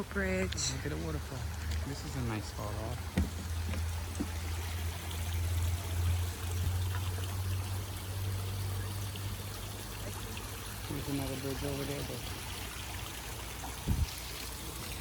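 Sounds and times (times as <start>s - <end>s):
knock: 3.2s - 4.3s.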